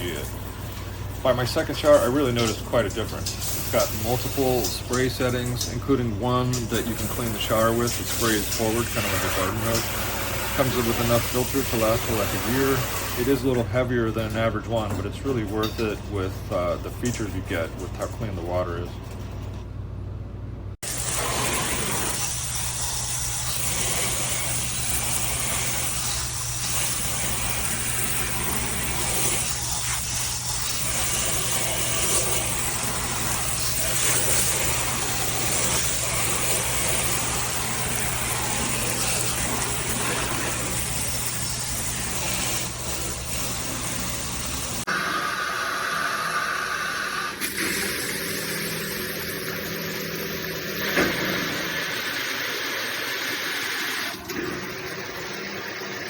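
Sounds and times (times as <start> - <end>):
shower head spraying water: 0.0 - 14.3, 20.8 - 56.0.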